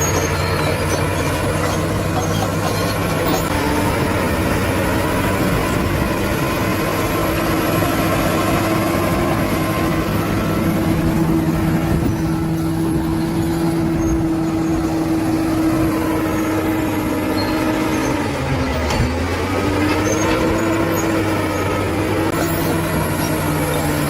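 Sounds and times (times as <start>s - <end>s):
bulldozer diesel engine: 0.0s - 24.0s.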